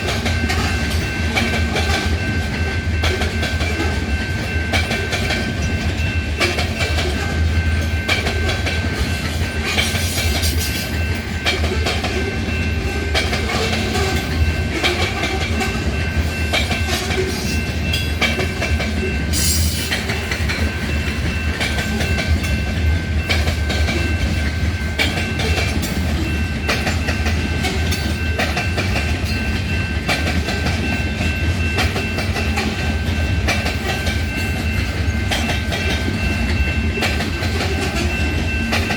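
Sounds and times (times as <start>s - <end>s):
freight train rumbling: 0.0s - 38.9s
wheels clacking over rail joints: 0.0s - 38.9s.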